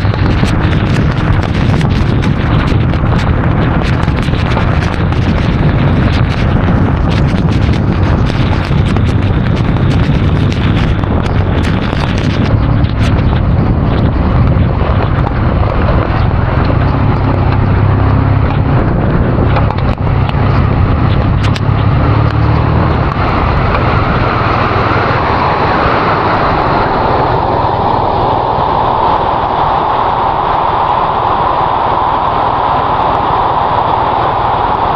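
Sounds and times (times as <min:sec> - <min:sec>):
low motorcycle engine hum: 0:00.0 - 0:34.9
wind rush and road noise: 0:00.0 - 0:34.9.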